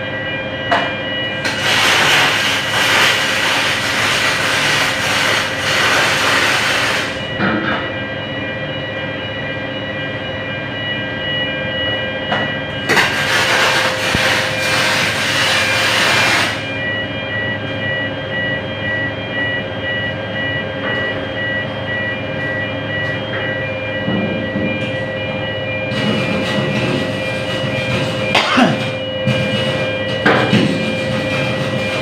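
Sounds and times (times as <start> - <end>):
steady machine hum: 0.0 - 32.0
welding arc hissing: 1.4 - 7.2, 12.9 - 16.7.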